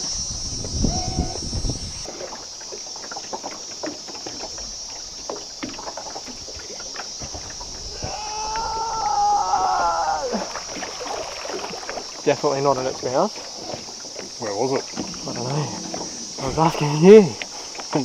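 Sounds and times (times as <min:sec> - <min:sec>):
person calling out: 0:00.8 - 0:01.4, 0:08.0 - 0:10.5
water splashing: 0:00.8 - 0:18.0.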